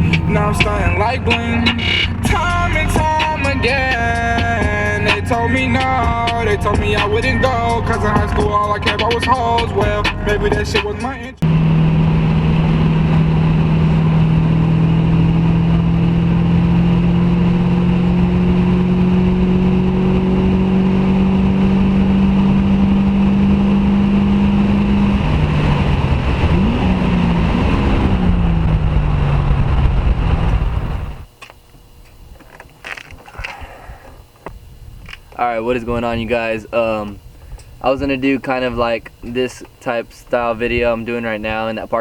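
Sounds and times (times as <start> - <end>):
car engine running under load: 0.0 - 32.1.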